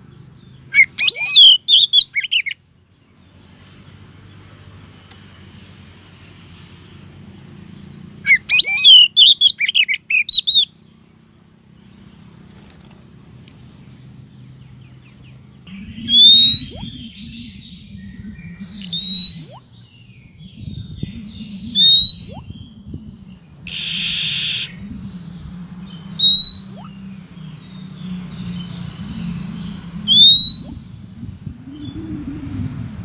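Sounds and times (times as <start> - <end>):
bird chirps and whistles: 0.7 - 2.6, 8.2 - 10.7, 16.0 - 19.8, 21.1 - 22.7, 23.7 - 24.8, 26.2 - 27.0, 29.9 - 32.3
rising bird whistle: 0.7 - 2.6, 8.2 - 10.7, 15.7 - 22.8, 23.6 - 25.1, 26.1 - 27.0, 29.8 - 32.9.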